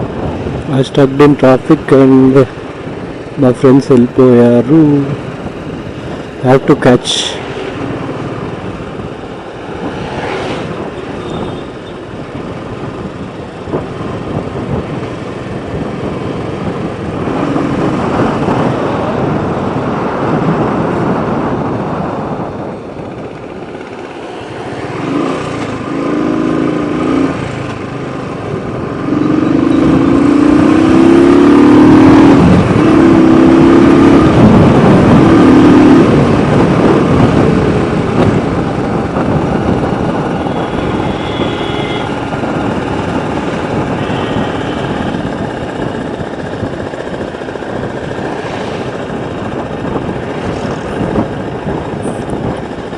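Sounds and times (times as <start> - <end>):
wind and road rush: 0.0 - 52.9
motorcycle engine: 7.4 - 52.9
horn blasts: 40.4 - 42.3.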